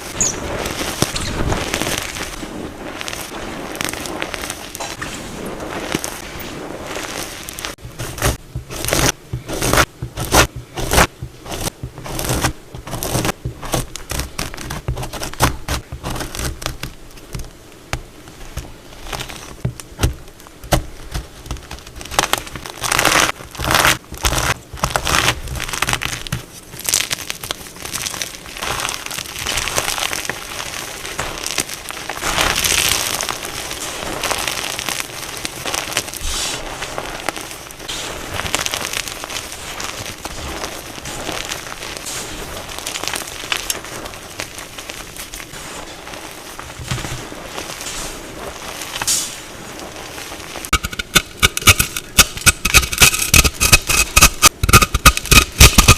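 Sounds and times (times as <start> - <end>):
chalk crunching and crumbling: 0.0 - 55.9.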